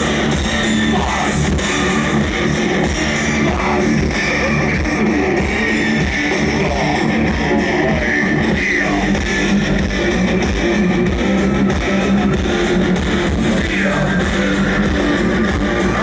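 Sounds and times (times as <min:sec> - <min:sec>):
bass: 0:00.0 - 0:16.0
drums: 0:00.0 - 0:16.0
heavy distorted electric guitars: 0:00.0 - 0:16.0.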